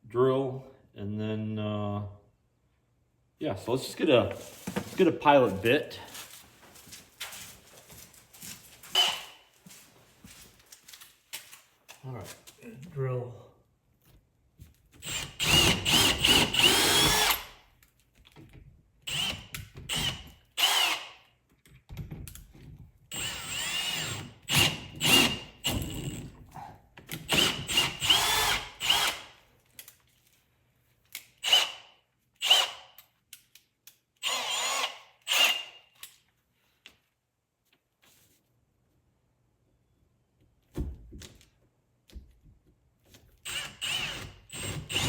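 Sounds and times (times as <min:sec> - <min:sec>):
power drill whining: 0:08.9 - 0:09.4, 0:15.0 - 0:17.6, 0:19.1 - 0:21.2, 0:23.1 - 0:26.2, 0:27.3 - 0:29.3, 0:31.4 - 0:31.8, 0:32.4 - 0:32.8, 0:34.2 - 0:35.8, 0:43.4 - 0:45.0.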